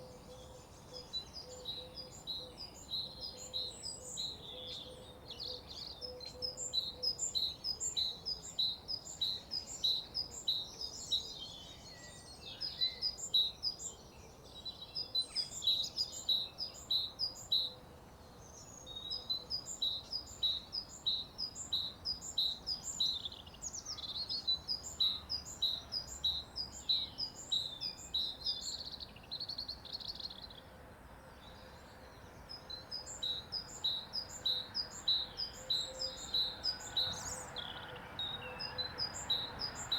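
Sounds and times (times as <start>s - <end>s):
birds singing: 31.4s - 39.9s.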